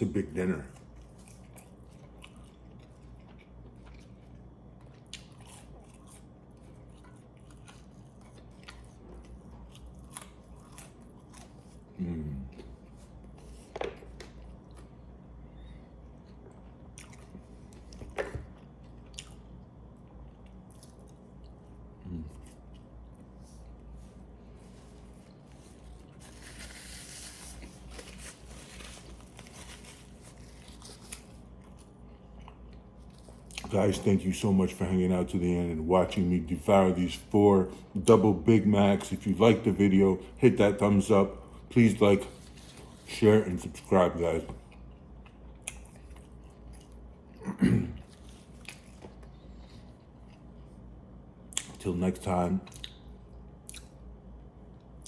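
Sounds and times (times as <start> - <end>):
low steady hum: 0.0 - 55.0
paper wrappers crinkling: 25.5 - 31.5
wet chewing mouth clicks: 53.6 - 54.0.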